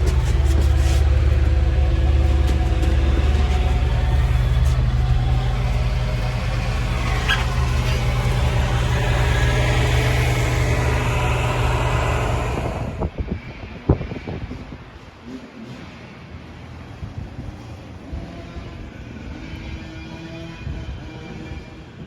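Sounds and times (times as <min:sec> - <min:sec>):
vehicle engine droning: 0:00.0 - 0:13.2.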